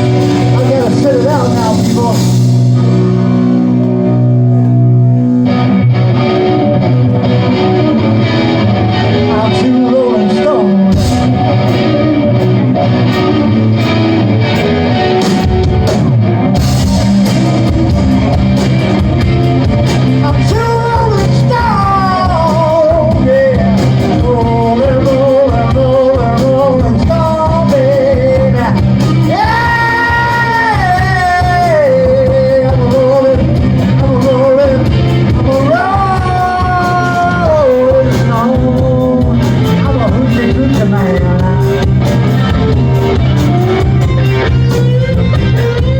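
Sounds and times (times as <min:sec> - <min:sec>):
bass: 0:00.0 - 0:45.9
drums: 0:00.0 - 0:45.9
lead melody bending notes: 0:00.0 - 0:45.9
rock band playing live: 0:00.0 - 0:45.9.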